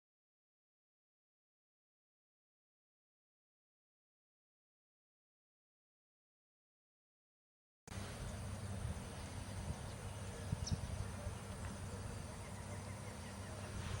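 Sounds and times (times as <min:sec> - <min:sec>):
outdoor ambience hiss: 0:07.9 - 0:14.0.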